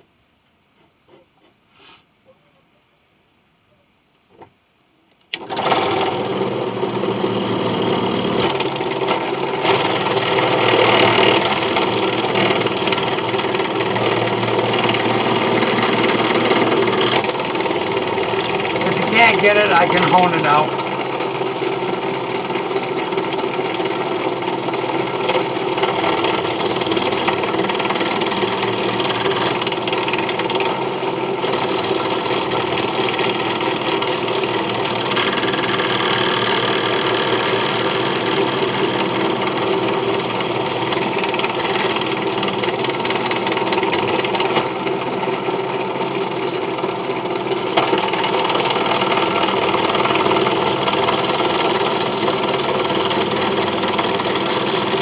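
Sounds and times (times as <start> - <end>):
power tool motor running: 5.4 - 45.2, 47.8 - 55.0
high cutting sound: 13.9 - 20.8.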